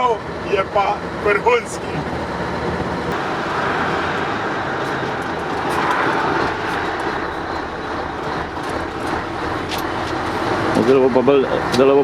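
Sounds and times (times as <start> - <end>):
diesel truck driving: 0.0 - 12.0.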